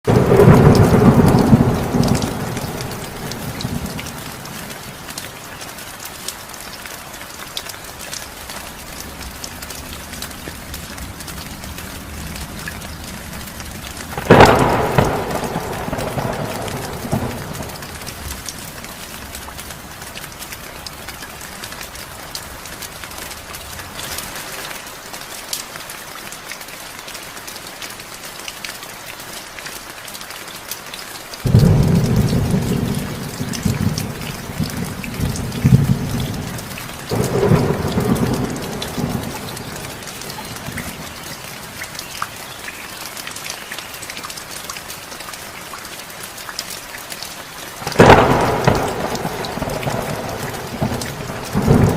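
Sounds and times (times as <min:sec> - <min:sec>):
heavy rain falling: 0:00.0 - 0:51.9
thunder rumbling: 0:00.1 - 0:04.9, 0:09.1 - 0:19.3, 0:31.5 - 0:41.7, 0:47.8 - 0:51.9.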